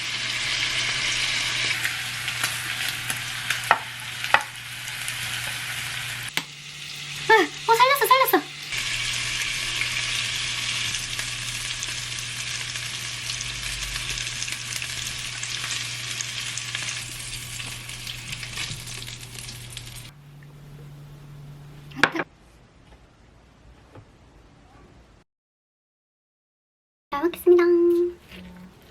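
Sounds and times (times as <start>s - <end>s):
food sizzling in a frying pan: 0.0s - 20.1s
low hum: 0.1s - 22.0s.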